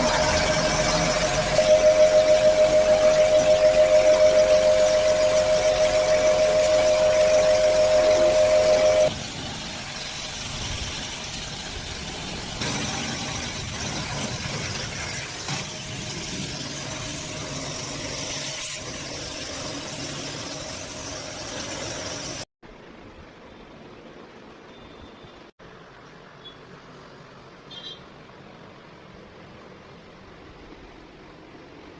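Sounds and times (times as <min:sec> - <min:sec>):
loud steady tone: 0:00.0 - 0:09.2
machine running with a hiss: 0:00.0 - 0:22.5.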